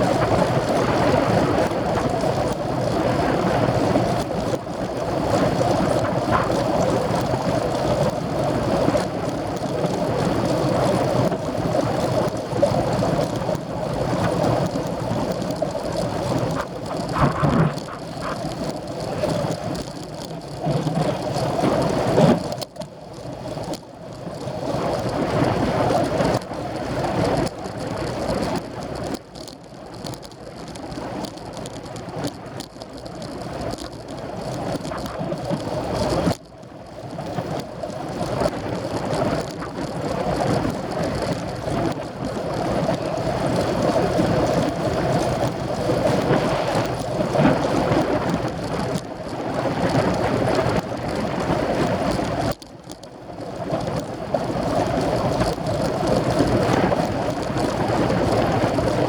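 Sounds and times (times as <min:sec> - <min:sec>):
wind rushing over microphone: 0:00.0 - 0:19.8, 0:38.1 - 0:52.6
road noise: 0:15.4 - 0:19.8.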